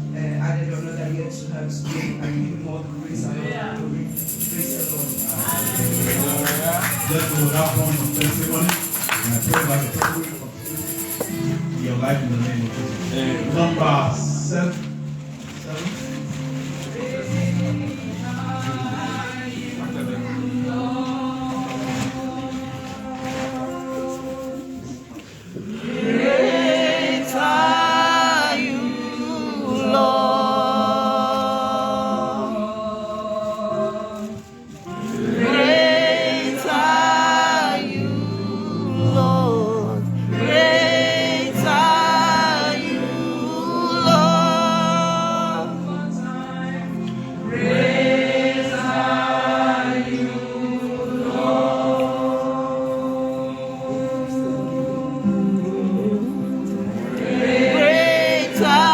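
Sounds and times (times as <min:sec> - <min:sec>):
held backing notes: 0:00.0 - 0:58.9
choir singing gospel: 0:03.2 - 0:14.6, 0:15.7 - 0:58.9.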